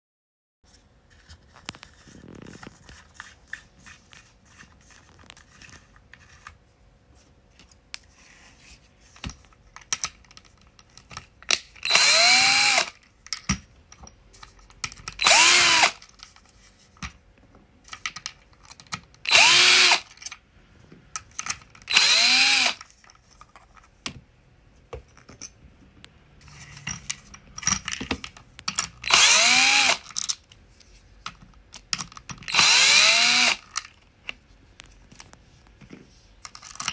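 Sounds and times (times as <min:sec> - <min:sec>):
parts clicking and knocking: 0:09.1 - 0:24.3, 0:24.9 - 0:36.9
cordless drill whirring: 0:11.8 - 0:13.0, 0:15.2 - 0:16.0, 0:19.2 - 0:20.1, 0:21.9 - 0:22.8, 0:29.0 - 0:30.0, 0:32.5 - 0:33.6.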